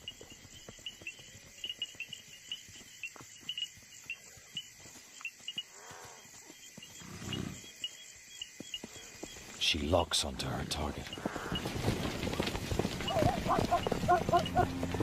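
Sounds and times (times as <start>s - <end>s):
crickets chirping: 0.0s - 15.0s
animals rustling in grass: 11.0s - 15.0s.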